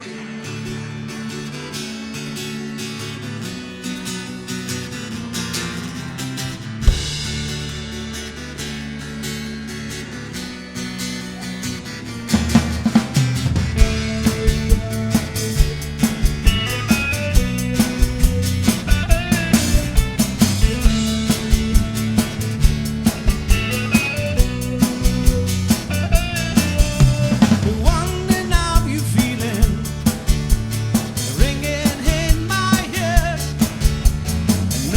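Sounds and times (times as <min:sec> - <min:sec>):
drums with steady beat: 0:06.4 - 0:09.0, 0:12.1 - 0:34.9
live band music: 0:06.7 - 0:08.6, 0:11.3 - 0:34.9.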